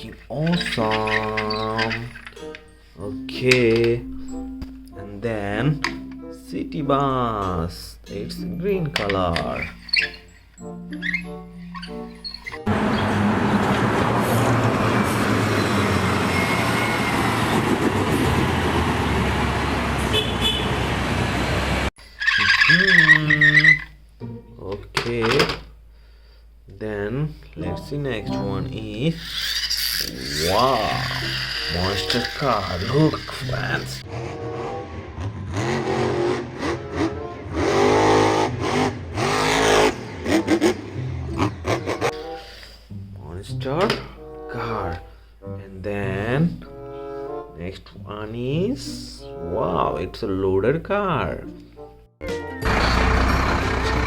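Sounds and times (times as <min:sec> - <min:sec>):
vehicle engine and road rumble: 0:09.8 - 0:22.0, 0:52.6 - 0:54.0
car engine revving: 0:12.7 - 0:21.9, 0:30.5 - 0:42.1, 0:52.6 - 0:54.0.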